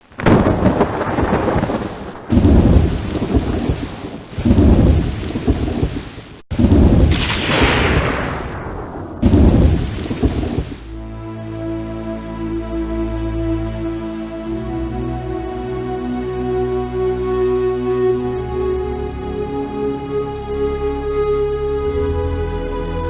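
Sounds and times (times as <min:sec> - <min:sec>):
heavy rain: 0:00.0 - 0:06.2, 0:09.2 - 0:23.0
rolling thunder: 0:00.1 - 0:05.9, 0:06.5 - 0:10.7.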